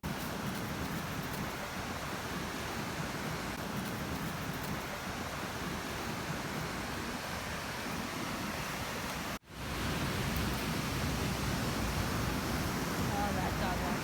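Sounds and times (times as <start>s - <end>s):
ocean surf rushing: 0.0s - 14.0s
wind on microphone: 0.0s - 14.0s.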